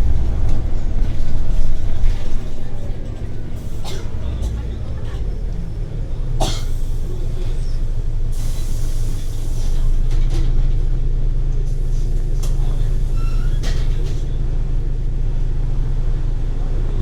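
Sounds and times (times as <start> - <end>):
bus engine rumble: 0.0 - 17.0
air hiss: 8.3 - 10.0.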